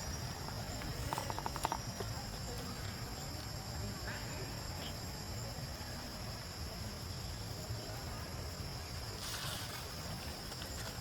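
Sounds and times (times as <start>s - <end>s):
light crackling and rustling: 9.1s - 11.0s.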